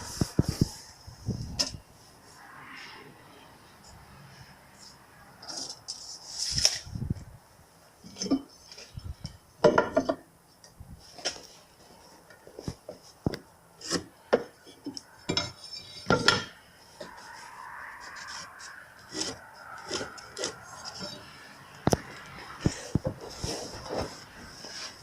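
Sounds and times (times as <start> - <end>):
tools and parts clinking: 8.0 - 10.2, 13.8 - 17.2.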